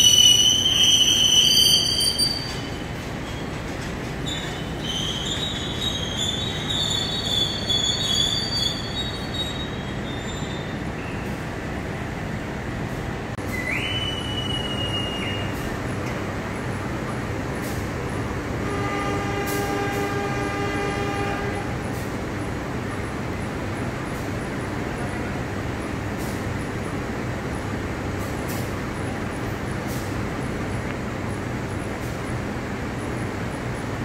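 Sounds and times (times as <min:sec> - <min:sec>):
train wheels squealing: 0:00.0 - 0:11.5, 0:13.4 - 0:15.8
idling train rumble: 0:00.0 - 0:34.0
whistle blast: 0:13.5 - 0:15.6
locomotive horn: 0:18.6 - 0:21.8.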